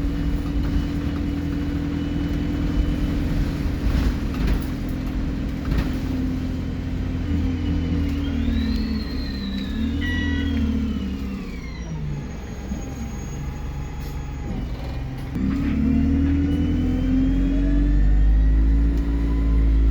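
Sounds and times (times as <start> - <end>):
bus diesel engine: 0.0 - 19.9
turbo whistle: 8.2 - 11.0.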